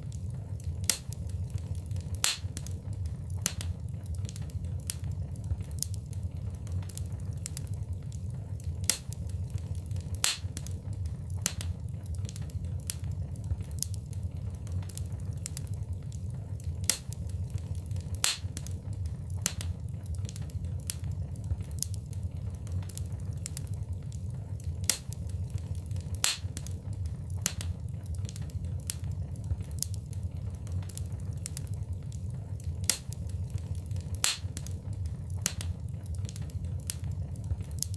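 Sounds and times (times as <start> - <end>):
flames rumbling: 0.0 - 37.9
logs crackling and popping: 0.0 - 37.9.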